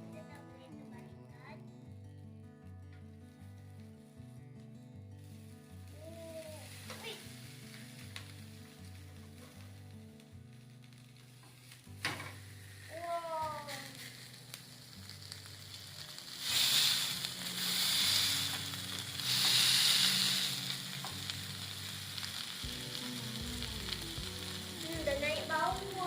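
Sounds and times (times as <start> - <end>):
steak sizzling in a pan: 5.2 - 26.0.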